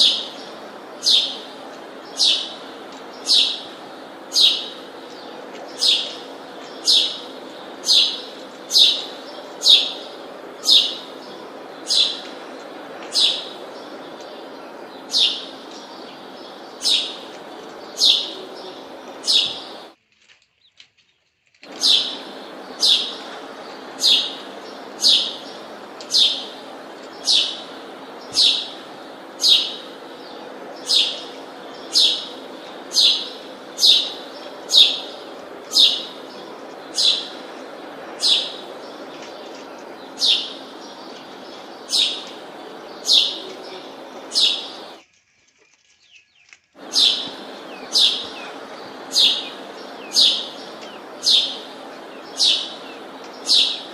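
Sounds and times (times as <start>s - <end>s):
bird high sharp chirp: 21.7s - 23.4s, 46.1s - 53.9s.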